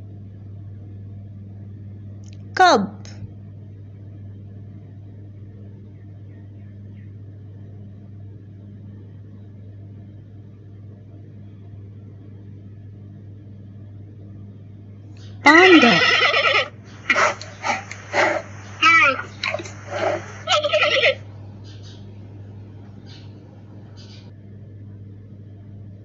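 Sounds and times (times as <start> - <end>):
steady low hum: 0.0 - 26.0
faint hiss: 15.5 - 21.2.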